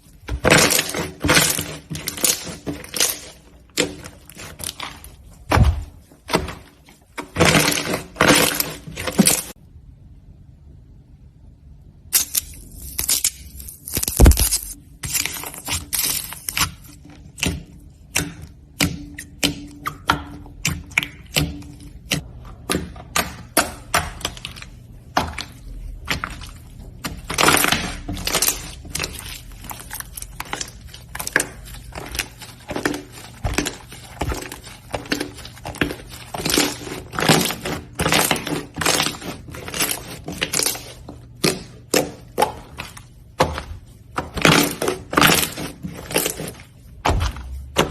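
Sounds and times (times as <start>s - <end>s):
slime crackling and popping: 12.2s - 16.8s.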